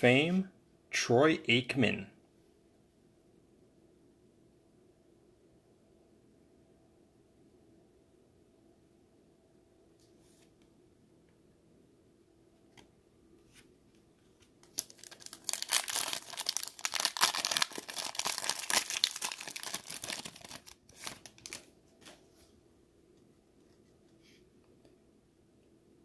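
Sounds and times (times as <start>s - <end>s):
plastic wrapper tearing and crinkling: 14.6s - 22.2s.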